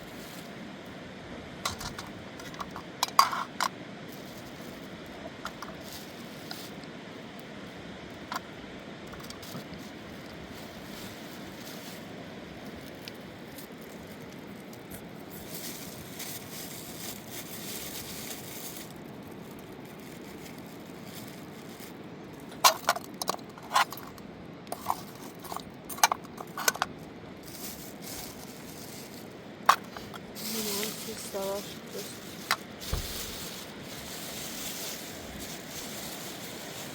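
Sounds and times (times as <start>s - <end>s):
hard objects clinking: 22.6s - 26.9s, 27.5s - 34.1s.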